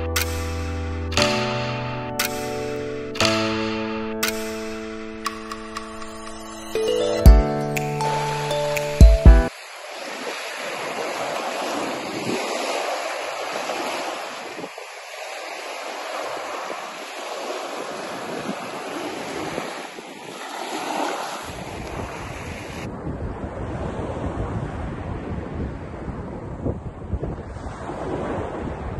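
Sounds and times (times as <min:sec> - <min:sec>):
surf breaking on beach: 0:09.5 - 0:26.5, 0:27.2 - 0:28.9
wind buffeting microphone: 0:17.9 - 0:28.9.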